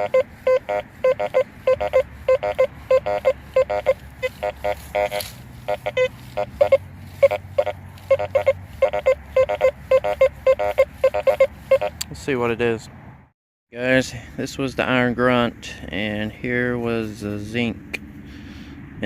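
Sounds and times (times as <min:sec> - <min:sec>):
metal detector short beeps: 0:00.0 - 0:12.0.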